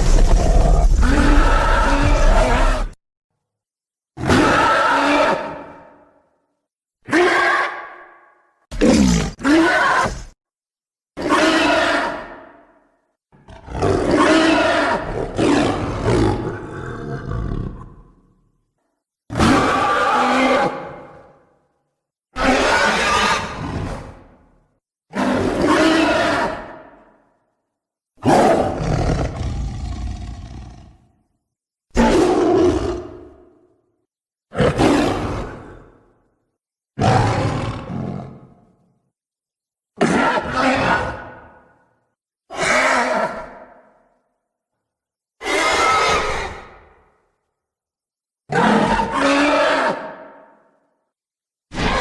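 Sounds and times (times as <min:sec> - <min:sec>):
monster roar: 0:00.0 - 0:03.0, 0:28.2 - 0:31.1, 0:31.9 - 0:33.6, 0:37.0 - 0:38.6, 0:40.0 - 0:41.7, 0:48.5 - 0:50.6, 0:51.7 - 0:52.0.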